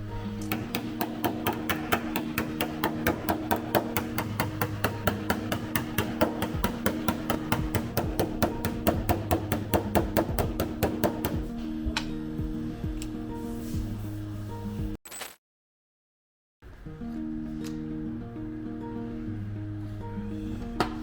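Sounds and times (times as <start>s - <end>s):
background music: 0.0s - 15.0s, 16.7s - 21.0s
hammer taps on sheet metal: 0.4s - 11.5s.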